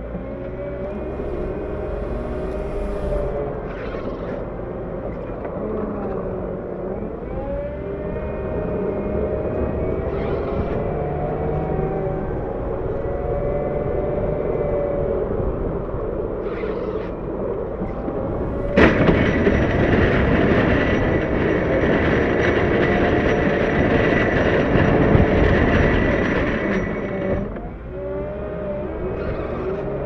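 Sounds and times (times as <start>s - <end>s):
loader engine running: 0.0s - 30.0s
snow pusher scraping pavement: 0.6s - 4.2s.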